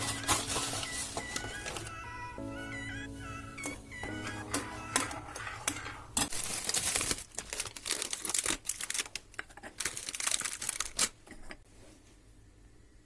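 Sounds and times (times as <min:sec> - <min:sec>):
paper crackling and rustling: 0:00.0 - 0:02.0, 0:04.5 - 0:11.2.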